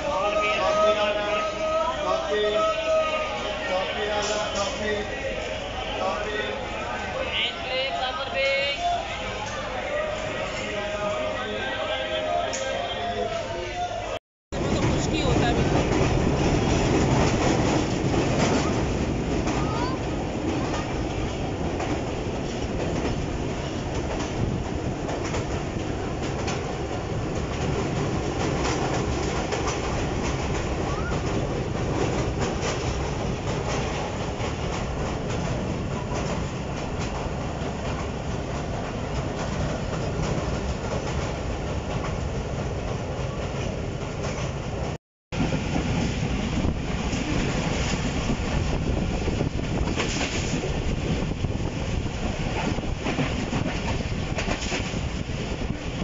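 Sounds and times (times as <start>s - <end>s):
train wheels rumbling and clattering: 14.5s - 56.0s.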